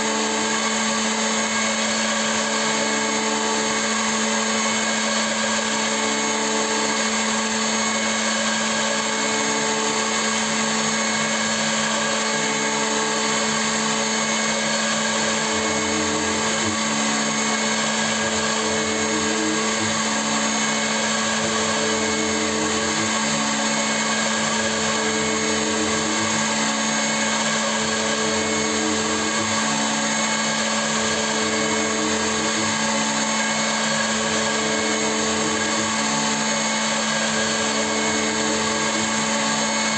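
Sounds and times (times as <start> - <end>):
milling machine motor hum: 0.0 - 39.9.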